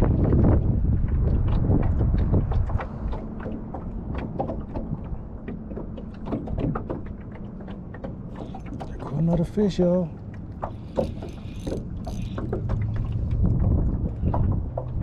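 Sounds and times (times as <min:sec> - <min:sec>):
wind buffeting microphone: 0:00.0 - 0:05.4, 0:10.5 - 0:15.0
gear clicking and knocking in boat: 0:00.0 - 0:15.0.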